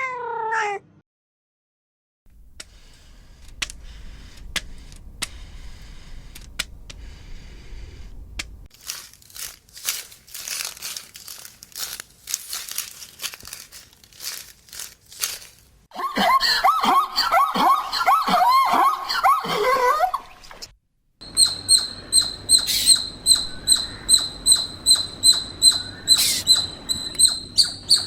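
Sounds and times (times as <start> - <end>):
low rumble: 2.3 - 9.5
rustling and crinkling: 2.4 - 15.9.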